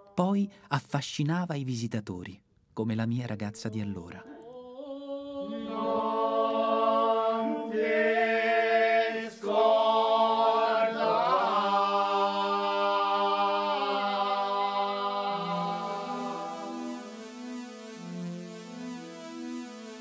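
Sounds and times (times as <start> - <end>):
group chanting a cappella: 4.2 - 16.8.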